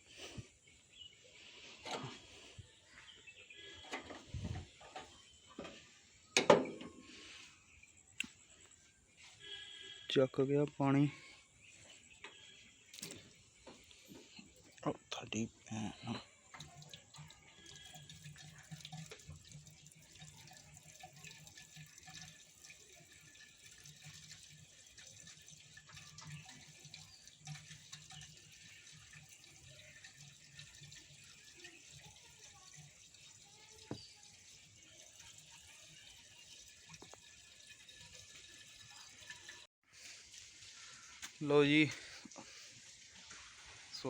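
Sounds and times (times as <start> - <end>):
water pouring and trickling: 0.0 - 44.0.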